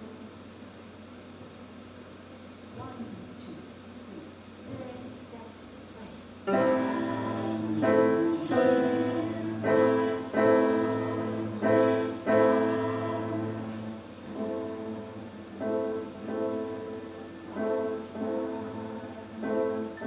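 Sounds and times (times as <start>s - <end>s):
piano chords: 0.0s - 0.7s, 6.4s - 20.0s.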